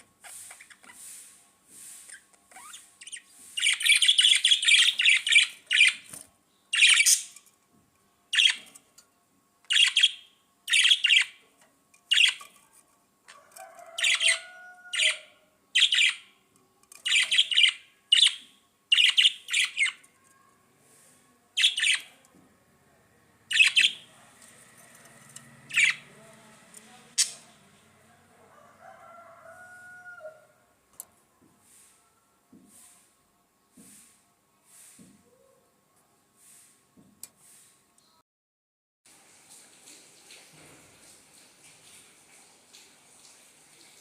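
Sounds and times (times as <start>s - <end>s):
budgerigars chattering and calling: 3.0s - 6.0s, 6.8s - 7.3s, 9.7s - 11.3s, 12.1s - 12.4s, 15.8s - 16.2s, 17.1s - 20.0s, 23.5s - 24.1s, 25.7s - 26.1s.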